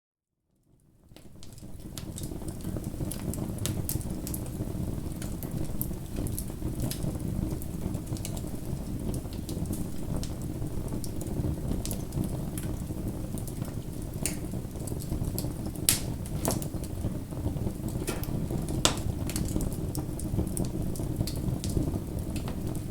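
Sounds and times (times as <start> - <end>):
bonfire flames rumbling: 1.0 - 22.9
burning wood crackling and popping: 1.0 - 22.9.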